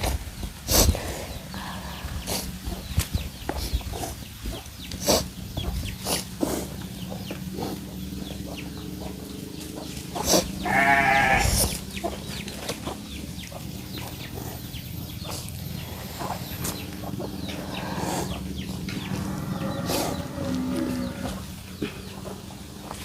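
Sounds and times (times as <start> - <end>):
steady low hum: 0.0 - 23.0
goat bleating: 10.5 - 11.8.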